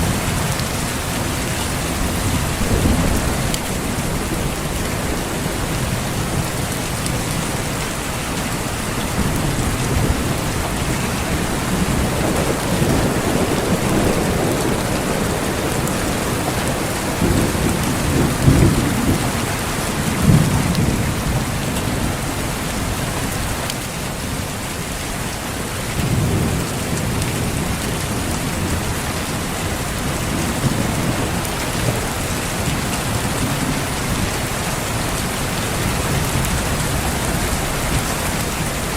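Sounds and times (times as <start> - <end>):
distant thunder rumbling: 0.0 - 23.1
steady rain: 0.0 - 38.9.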